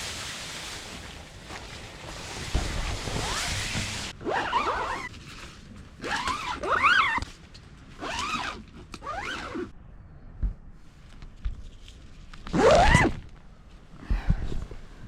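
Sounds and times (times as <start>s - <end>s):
zipper being pulled: 3.0s - 5.1s, 6.0s - 7.3s, 8.0s - 9.7s, 12.5s - 13.2s.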